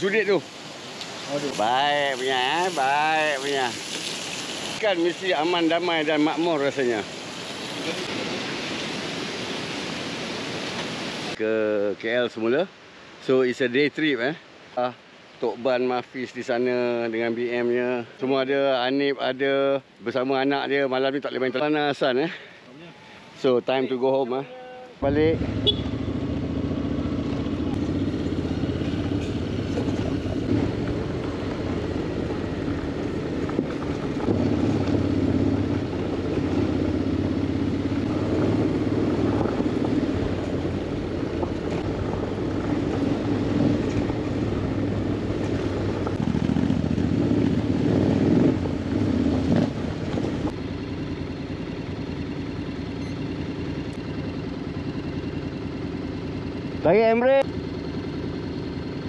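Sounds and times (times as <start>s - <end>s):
motorcycle engine revving: 25.0s - 59.0s.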